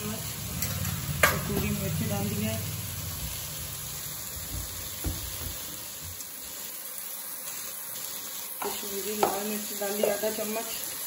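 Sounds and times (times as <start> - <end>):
food sizzling in a wok: 0.0 - 11.0
soft knock: 4.4 - 5.8.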